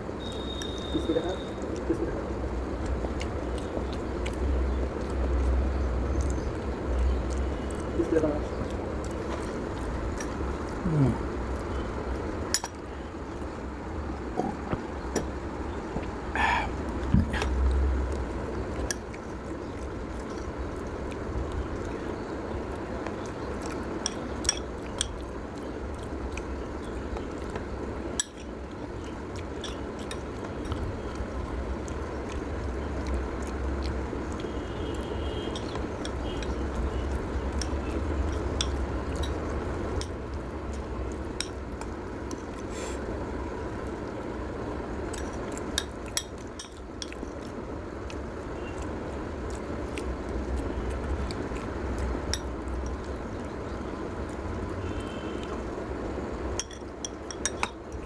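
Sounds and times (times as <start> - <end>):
cutlery clinking against a dish: 56.6 - 57.8.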